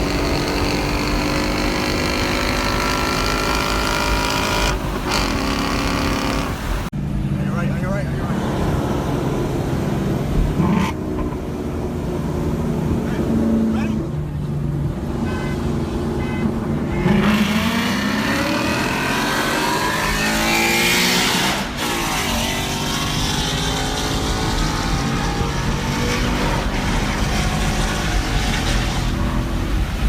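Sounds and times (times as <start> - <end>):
car engine revving: 0.0 - 6.9, 17.0 - 30.0.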